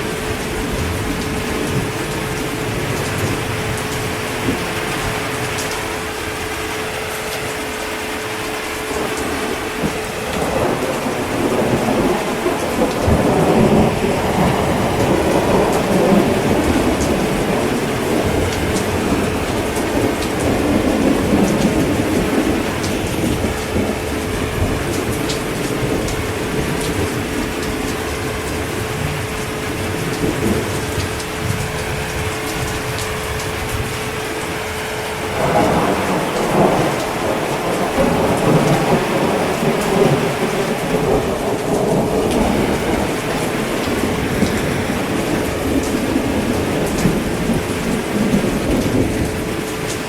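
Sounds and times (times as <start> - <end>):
heavy rain: 0.0 - 50.0
rolling thunder rumble: 0.0 - 50.0.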